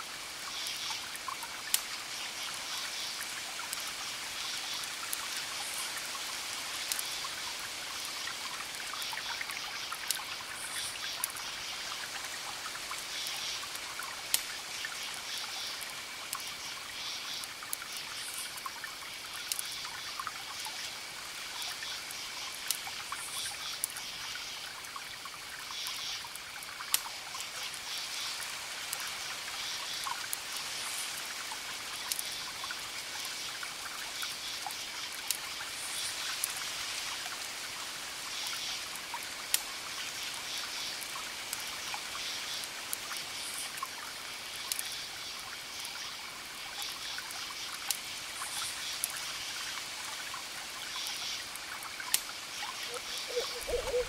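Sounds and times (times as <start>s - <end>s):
wood fire crackling: 6.5s - 7.1s, 22.6s - 22.9s, 44.6s - 44.9s, 51.6s - 54.0s
high chirps: 52.9s - 54.0s
thin steady high tone: 52.9s - 54.0s.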